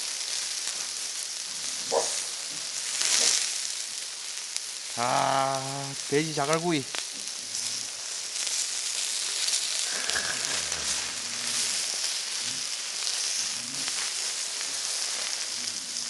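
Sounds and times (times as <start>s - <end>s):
meat sizzling on hot stones: 0.0s - 16.0s.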